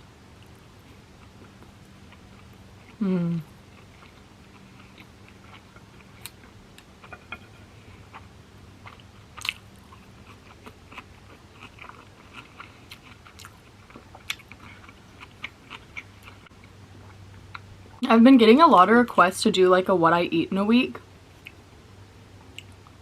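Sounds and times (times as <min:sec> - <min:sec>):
low steady hum: 0:00.0 - 0:23.0
person chewing: 0:00.4 - 0:17.7.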